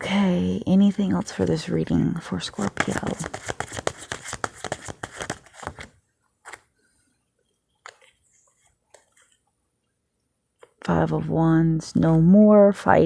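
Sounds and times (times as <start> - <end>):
cards being shuffled: 2.4 - 6.7, 7.8 - 9.4
cards tapped down: 2.6 - 5.9.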